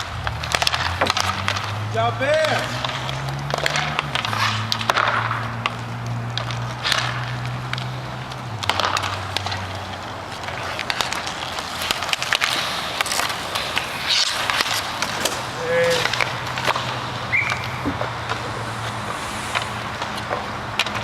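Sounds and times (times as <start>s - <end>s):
hockey sticks and puck clacking: 0.0s - 21.0s
skates scraping: 0.0s - 21.0s
low hum: 16.3s - 21.0s.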